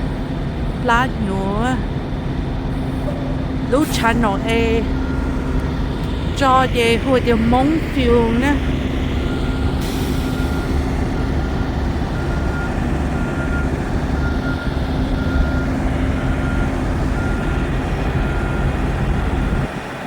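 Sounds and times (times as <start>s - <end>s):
truck engine and road drone: 0.0s - 20.0s
faint high beeps: 3.0s - 8.6s.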